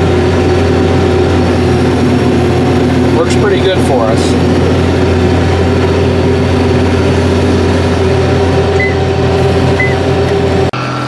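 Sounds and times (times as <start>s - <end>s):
combine harvester running: 0.0s - 11.0s
low machine hum: 0.0s - 11.0s
short high beeps: 8.8s - 9.0s.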